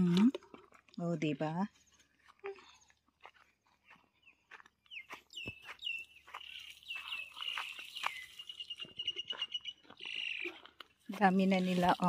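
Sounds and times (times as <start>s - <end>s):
light ticks and crunches: 1.9s - 12.0s
small bird chirping and trilling: 3.8s - 10.8s.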